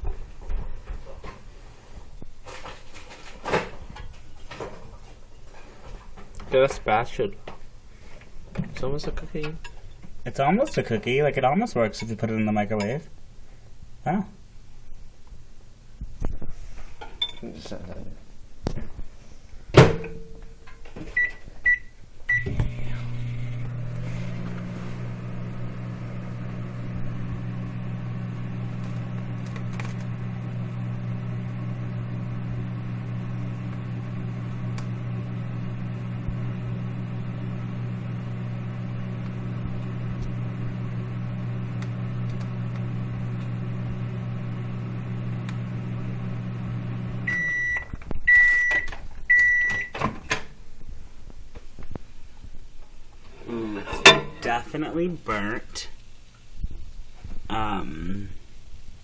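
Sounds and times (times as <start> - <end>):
microwave oven humming: 21.2 - 50.1
clunks: 53.8 - 54.6.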